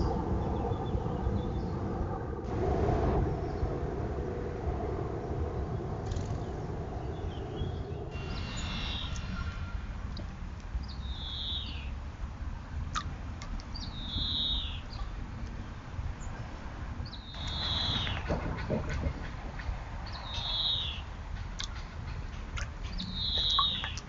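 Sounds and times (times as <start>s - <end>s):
steady low rumble: 0.0s - 24.0s
bird calling: 6.1s - 9.8s, 10.8s - 12.0s, 13.7s - 15.2s, 17.1s - 24.0s.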